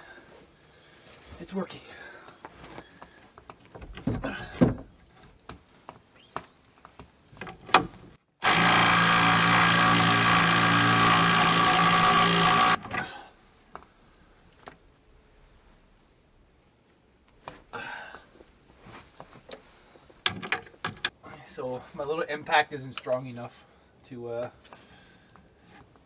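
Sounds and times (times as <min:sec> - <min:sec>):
impact driver hammering bolt: 0:08.4 - 0:12.8
knocks and handling noises: 0:19.0 - 0:21.2.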